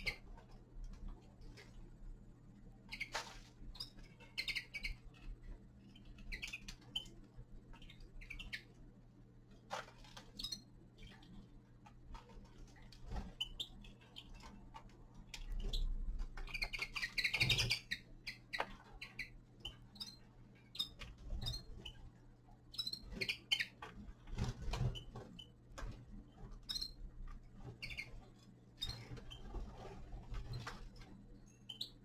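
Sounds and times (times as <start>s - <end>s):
finches chirping: 0.0s - 0.4s, 2.8s - 8.8s, 10.2s - 11.4s, 12.9s - 25.6s, 26.4s - 32.0s
finches twittering: 2.9s - 8.8s, 15.4s - 22.0s, 22.6s - 23.8s, 27.6s - 29.5s.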